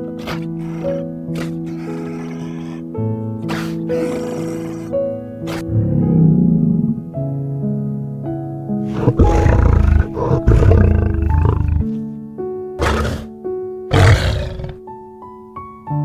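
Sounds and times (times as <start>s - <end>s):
lion growling and roaring: 0.0s - 2.8s, 3.5s - 7.3s, 8.9s - 12.0s, 12.8s - 13.3s, 13.9s - 14.8s
piano music: 0.0s - 16.0s.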